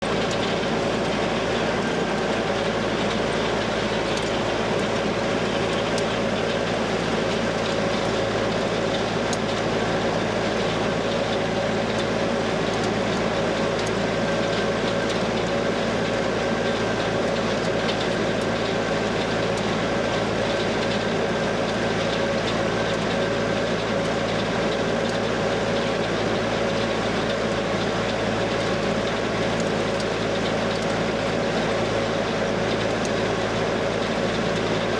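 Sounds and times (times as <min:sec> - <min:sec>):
steady machine whine: 0:00.0 - 0:17.2
diesel engine drone: 0:00.0 - 0:34.9.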